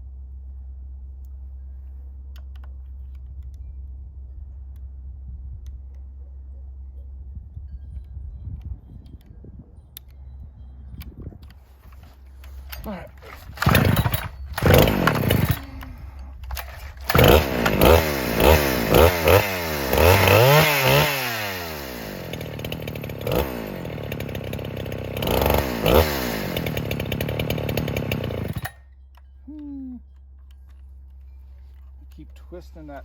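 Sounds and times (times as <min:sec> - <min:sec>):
chainsaw revving: 0:12.0 - 0:28.8.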